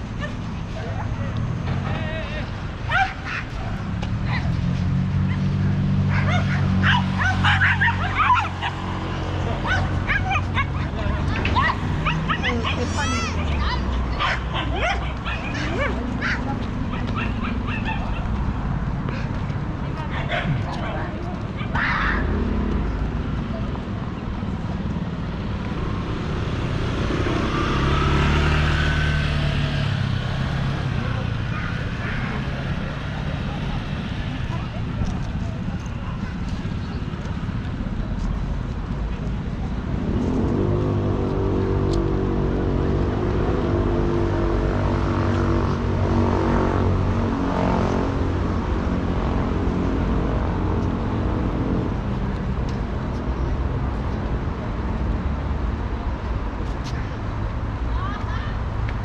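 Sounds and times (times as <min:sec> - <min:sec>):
vehicle engine passing by: 0:22.0 - 0:57.0.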